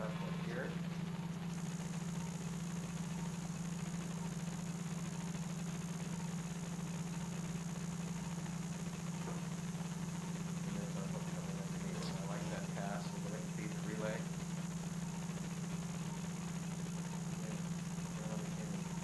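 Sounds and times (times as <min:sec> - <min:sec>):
faint high whine: 0:00.0 - 0:19.0
low machine hum: 0:00.0 - 0:19.0.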